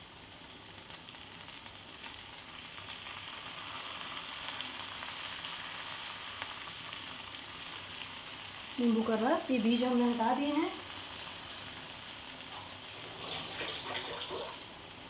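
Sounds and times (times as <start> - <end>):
potatoes sizzling in oil: 0.0 - 15.0.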